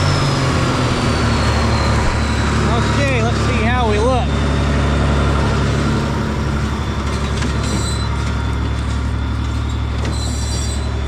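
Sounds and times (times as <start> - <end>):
tractor engine running: 0.0 - 11.0
high-pitched squeaks: 6.6 - 11.0.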